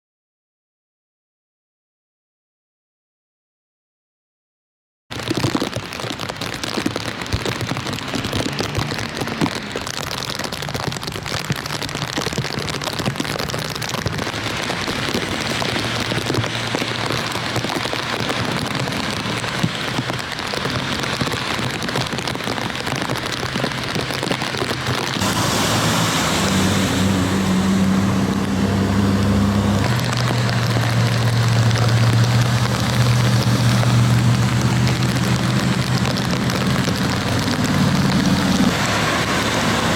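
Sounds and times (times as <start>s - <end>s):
heavy rain hissing: 5.7s - 39.9s
low engine hum: 25.2s - 39.9s.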